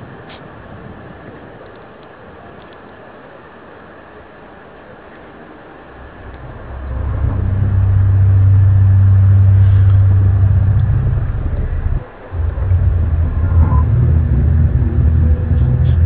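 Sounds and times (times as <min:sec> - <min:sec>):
deep droning hum: 0:05.8 - 0:16.0.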